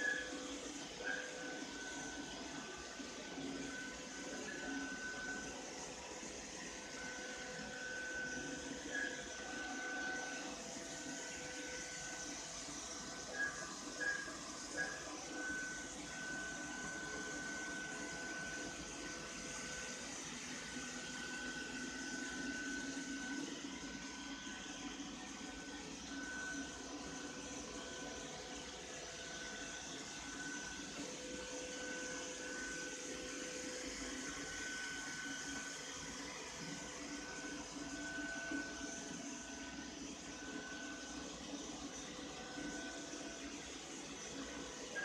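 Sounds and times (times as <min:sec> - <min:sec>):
thin high whine: 0:00.0 - 0:20.2
robot vacuum cleaner hum: 0:00.0 - 0:45.0.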